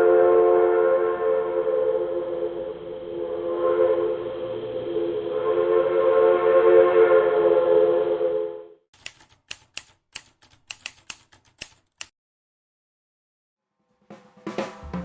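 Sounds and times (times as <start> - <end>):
train horn: 0.0 - 8.7
sharp irregular clicks: 9.0 - 12.1.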